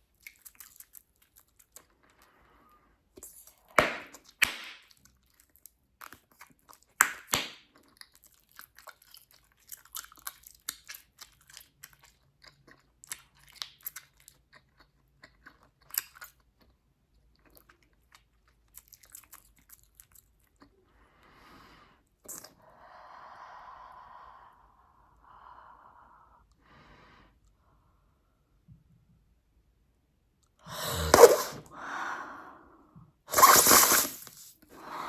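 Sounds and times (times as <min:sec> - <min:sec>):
loud gum snaps: 0:03.8 - 0:05.0, 0:07.0 - 0:07.6
gum chewing wet clicks: 0:04.1 - 0:16.7.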